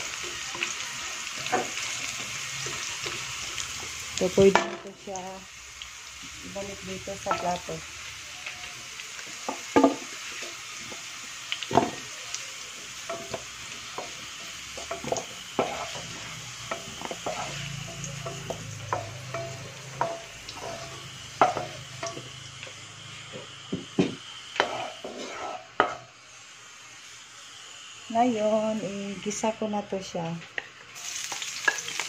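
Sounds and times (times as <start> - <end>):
vegetables sizzling in oil: 0.0 - 32.0
wooden spatula scraping a pan: 14.8 - 17.7, 24.6 - 26.0.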